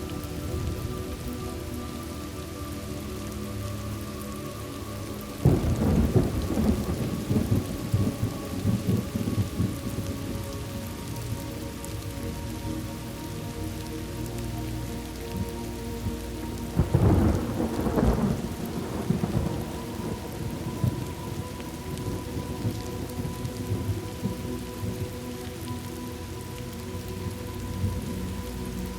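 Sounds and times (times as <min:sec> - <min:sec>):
rain falling: 0:00.0 - 0:28.9
thunder claps rumbling: 0:05.4 - 0:10.5, 0:16.7 - 0:25.1.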